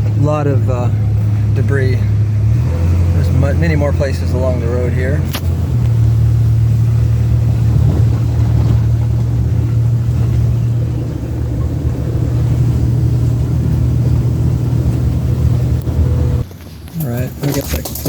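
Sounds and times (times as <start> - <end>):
vehicle engine drone: 0.0 - 18.0.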